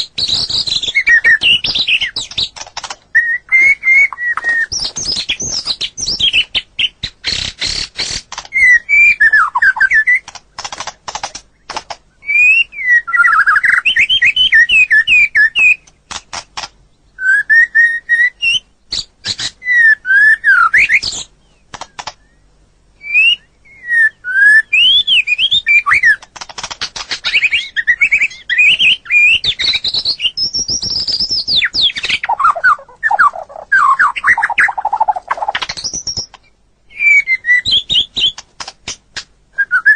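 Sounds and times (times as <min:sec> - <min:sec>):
songbird whistling: 0:00.0 - 0:02.5, 0:03.1 - 0:07.9, 0:08.5 - 0:10.2, 0:12.2 - 0:15.9, 0:17.1 - 0:26.2, 0:27.2 - 0:38.4, 0:39.5 - 0:39.9
bird clicking and chattering: 0:00.3 - 0:03.1, 0:07.2 - 0:08.7, 0:10.2 - 0:12.0, 0:15.8 - 0:16.8, 0:21.7 - 0:22.2, 0:26.2 - 0:27.6, 0:30.7 - 0:36.5, 0:38.2 - 0:39.3.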